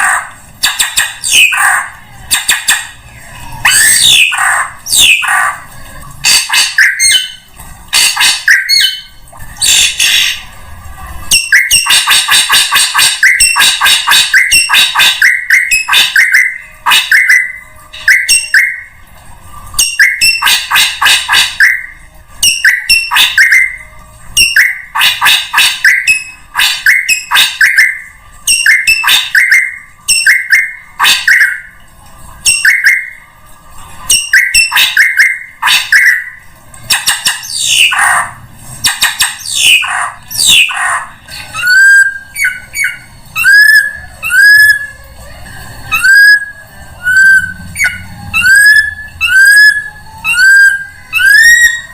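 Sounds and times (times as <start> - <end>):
drongo chattering calls: 36.9 - 44.9.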